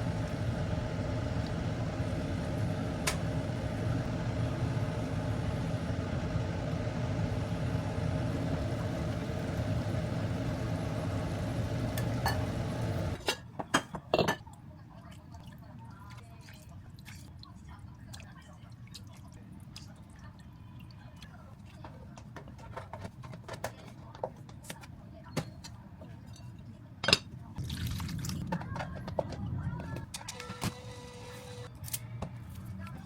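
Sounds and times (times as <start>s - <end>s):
appliance motor hum: 0.0s - 13.2s, 29.1s - 31.7s
dishes clinking: 13.2s - 14.5s, 25.3s - 27.3s.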